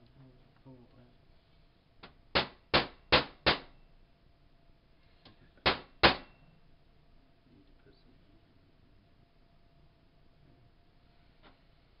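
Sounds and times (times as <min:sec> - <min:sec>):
hammer striking metal: 0:02.3 - 0:03.8, 0:05.6 - 0:06.5.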